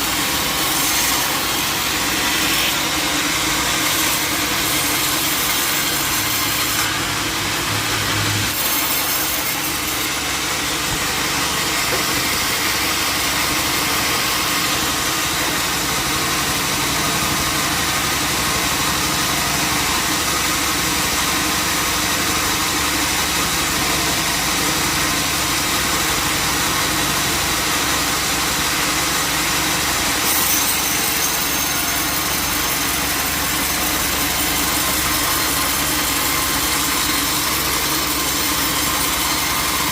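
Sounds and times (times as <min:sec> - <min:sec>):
saw cutting through wood: 0:00.0 - 0:39.9
sawmill engine running: 0:00.0 - 0:39.9.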